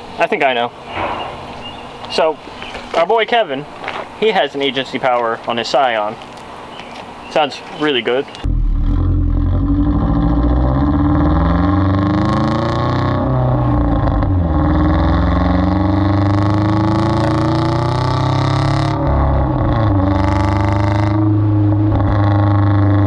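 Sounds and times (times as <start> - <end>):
sports car exhaust revving: 8.3 - 23.0.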